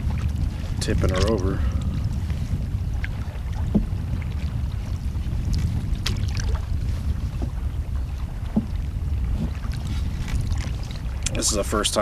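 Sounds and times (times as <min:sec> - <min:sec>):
wind buffeting microphone: 0:00.0 - 0:12.0
faint ticks and knocks: 0:08.4 - 0:09.6.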